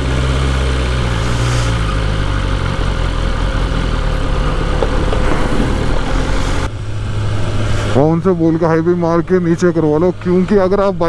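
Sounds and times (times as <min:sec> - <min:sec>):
motorcycle engine at low revs: 0:00.0 - 0:11.0
road and wind noise: 0:00.0 - 0:11.0.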